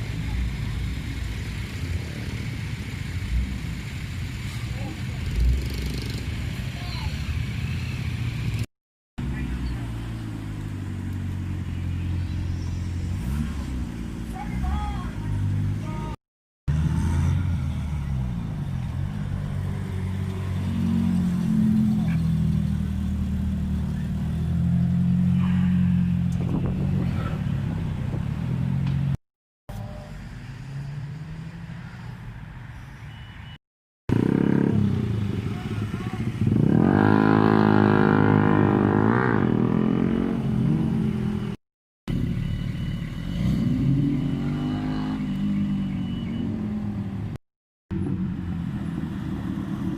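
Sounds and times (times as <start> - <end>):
car engines revving: 0.0 - 29.2, 34.1 - 49.9
people talking: 4.6 - 5.4, 6.6 - 7.3, 14.3 - 16.2, 35.4 - 36.5.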